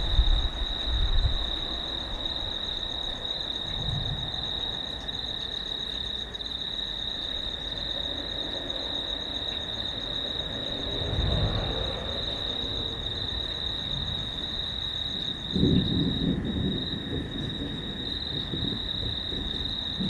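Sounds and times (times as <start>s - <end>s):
distant thunder rumble: 0.0s - 4.9s, 10.8s - 20.0s
insect chorus trilling: 0.0s - 20.0s.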